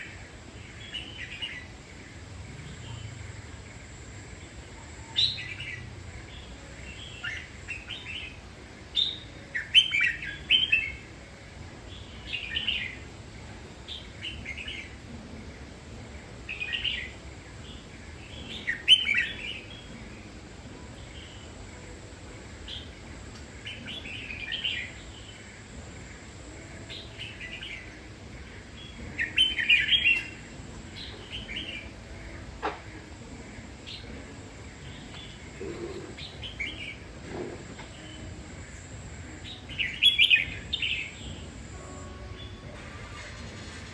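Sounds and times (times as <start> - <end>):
bird singing chirpy phrases: 33.4 - 37.2.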